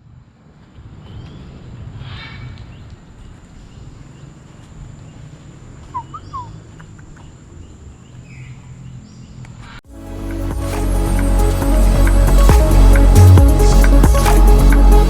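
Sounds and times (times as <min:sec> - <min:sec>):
bird chirps: 0:05.8 - 0:09.8
music: 0:09.9 - 0:15.0.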